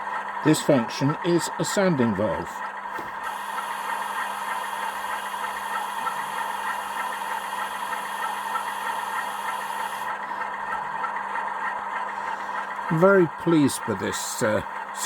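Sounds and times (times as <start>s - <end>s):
diesel engine idling: 3.2s - 11.0s, 12.1s - 15.0s.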